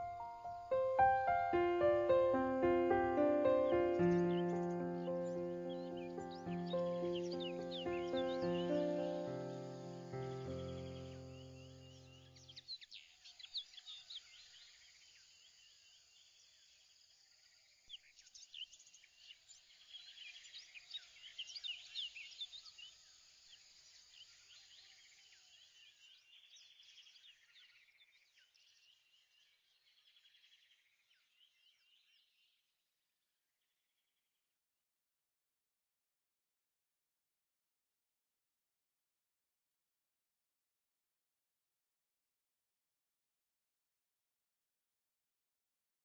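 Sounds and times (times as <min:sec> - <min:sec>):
small birds chirping and twittering: 0:00.0 - 0:32.7.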